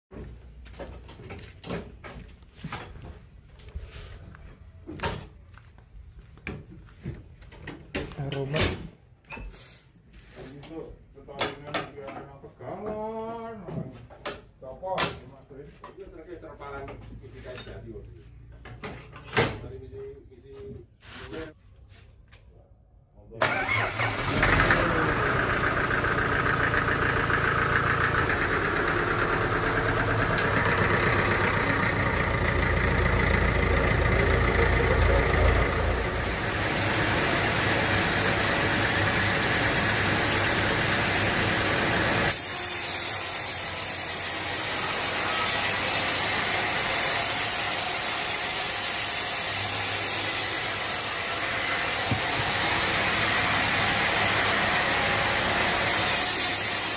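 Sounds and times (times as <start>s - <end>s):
engine starting and running: 23.4s - 42.4s.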